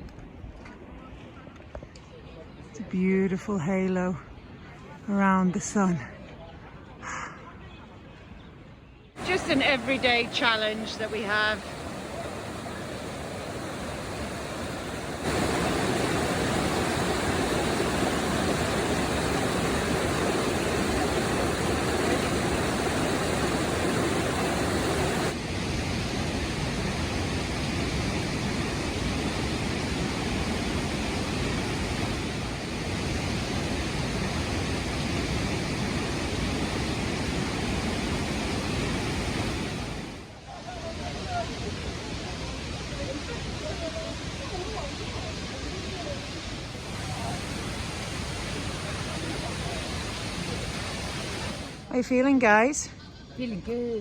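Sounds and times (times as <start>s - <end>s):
rushing stream water: 9.2s - 40.2s, 46.8s - 51.9s.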